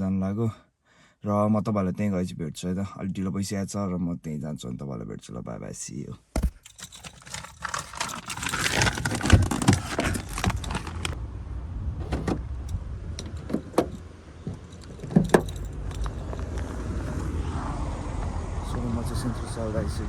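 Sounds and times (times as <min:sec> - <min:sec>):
rustling and knocking: 0:06.4 - 0:11.2
car engine rumbling: 0:06.4 - 0:20.0.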